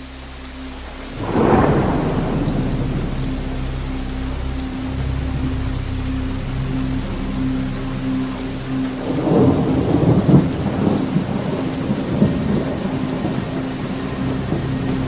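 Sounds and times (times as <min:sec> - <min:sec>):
steady rain falling: 0:00.0 - 0:15.0
rolling thunder: 0:01.1 - 0:05.8, 0:09.0 - 0:15.0.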